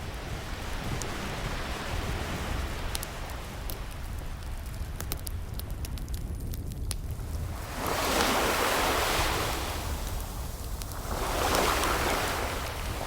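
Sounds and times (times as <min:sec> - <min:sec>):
waves washing in and receding: 0:00.0 - 0:04.7, 0:07.1 - 0:13.0
faint fireplace crackles: 0:02.8 - 0:08.4.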